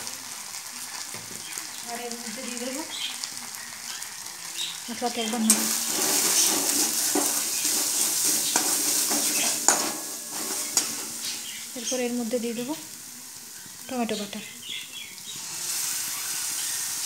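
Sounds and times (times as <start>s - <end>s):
paste sizzling in oil: 0.0s - 17.0s
metal spatula scraping pan: 5.2s - 12.3s
spatula knocking on pan: 5.5s - 11.7s.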